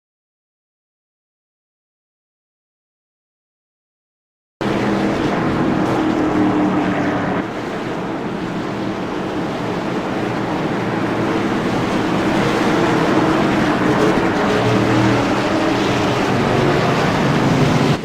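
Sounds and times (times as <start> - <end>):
racing car engines drone: 4.6 - 18.0.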